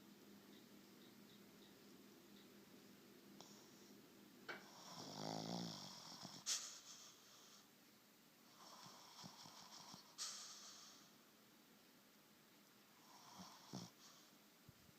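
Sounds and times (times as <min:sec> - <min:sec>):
dog snoring: 0:04.6 - 0:07.6, 0:08.5 - 0:11.1, 0:13.0 - 0:14.3.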